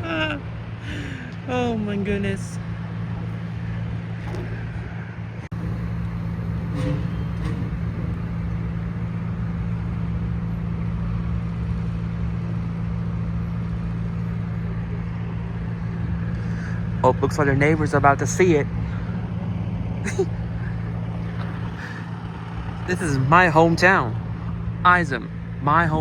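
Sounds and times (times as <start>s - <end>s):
engine idling rumble: 0.0s - 26.0s
road traffic passing: 0.0s - 26.0s.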